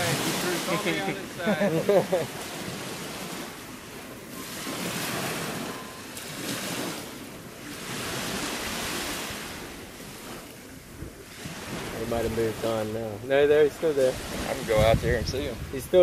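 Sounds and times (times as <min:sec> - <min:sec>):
sea waves washing over rocks: 0:00.0 - 0:16.0
wind on microphone: 0:14.0 - 0:16.0.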